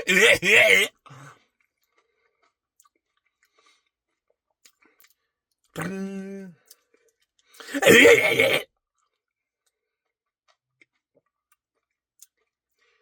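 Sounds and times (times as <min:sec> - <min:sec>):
wet mouth eating sound: 0:00.0 - 0:00.9, 0:05.8 - 0:06.8, 0:07.6 - 0:08.6.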